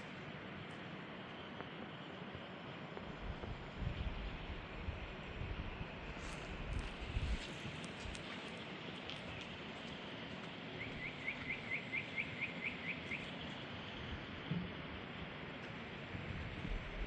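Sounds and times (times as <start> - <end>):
bird chirping: 10.8 - 13.5.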